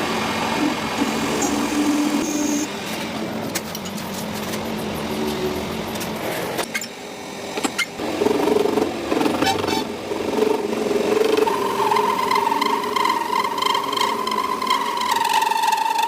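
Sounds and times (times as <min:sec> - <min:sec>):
rising machine whine: 0:10.2 - 0:16.0.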